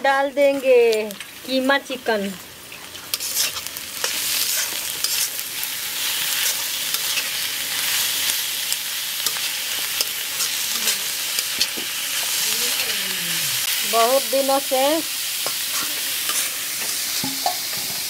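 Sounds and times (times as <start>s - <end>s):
meat sizzling in hot oil: 0.0s - 18.0s
steel spatula scraping pan: 3.1s - 5.4s.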